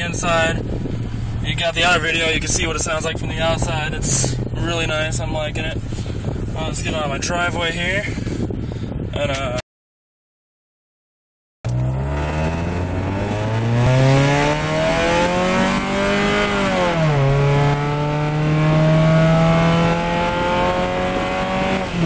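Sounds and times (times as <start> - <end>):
car engine accelerating hard: 11.7 - 22.0.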